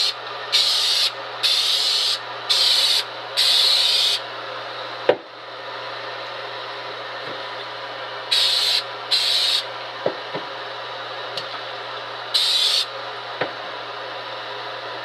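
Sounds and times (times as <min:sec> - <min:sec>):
aerosol spray can hissing: 0:08.3 - 0:09.6, 0:12.4 - 0:12.9.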